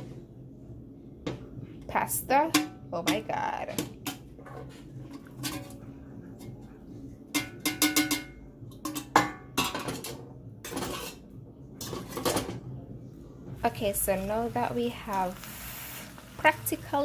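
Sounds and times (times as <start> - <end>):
spoon scraping a pot: 4.1 - 5.8, 8.8 - 12.5.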